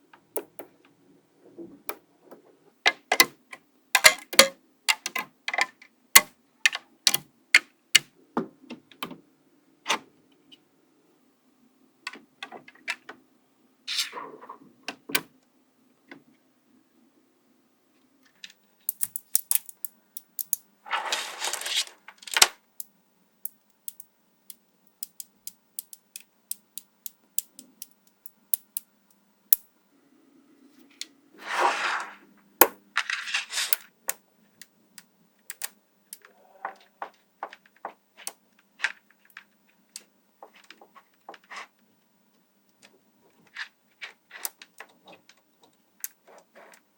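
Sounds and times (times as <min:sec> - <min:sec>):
magnetic balls clicking together: 0:18.9 - 0:20.7, 0:22.2 - 0:29.7, 0:35.4 - 0:36.3
magnetic balls clattering rattle: 0:18.9 - 0:22.5.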